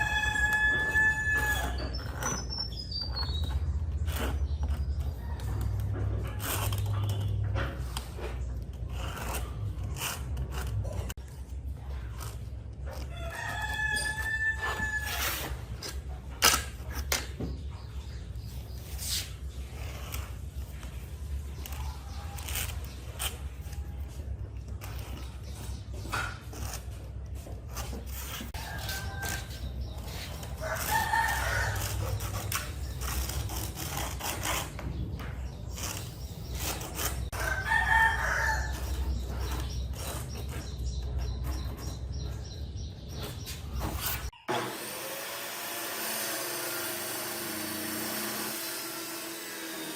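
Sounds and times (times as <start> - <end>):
rooster crowing: 0.0 - 1.8, 13.1 - 15.4, 30.6 - 32.0, 37.4 - 39.0.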